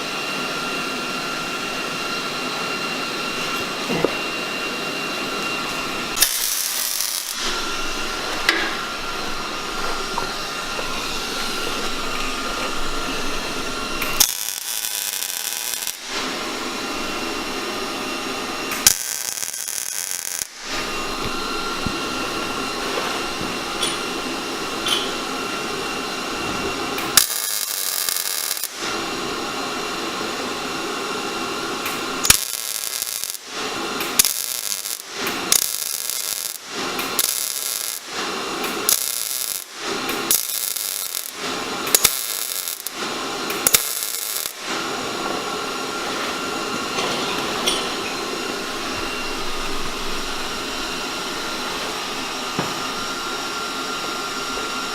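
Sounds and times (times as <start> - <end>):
welding arc bursts: 6.1 - 9.7, 10.6 - 17.4, 18.1 - 21.8, 26.9 - 29.5, 31.3 - 45.8.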